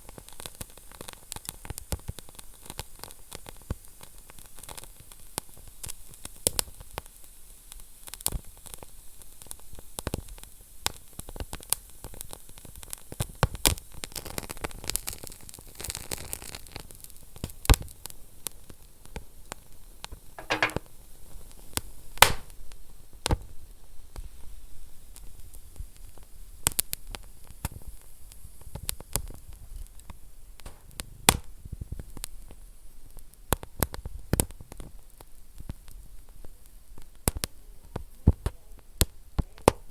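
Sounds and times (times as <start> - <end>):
wood fire crackling: 22.2 - 22.6, 26.1 - 39.9.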